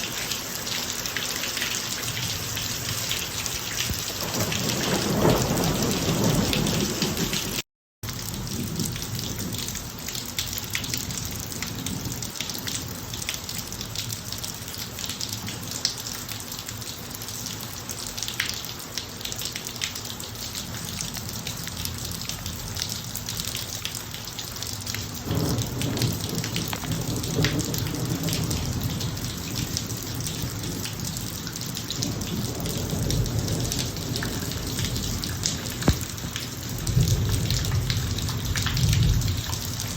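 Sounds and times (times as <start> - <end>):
heavy rain on hard surface: 0.0 - 39.9
thunder rolling: 3.9 - 7.6, 25.2 - 30.9, 32.0 - 39.9.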